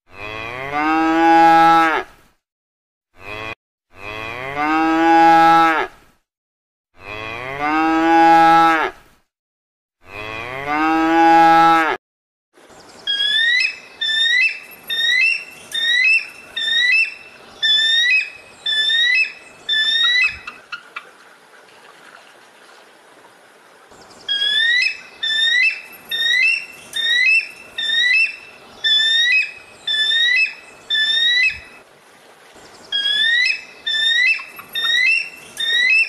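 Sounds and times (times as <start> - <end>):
cow mooing: 7.0 - 9.0, 10.0 - 12.0
eagle piping chirps: 13.1 - 20.9, 24.3 - 31.8, 33.0 - 36.0.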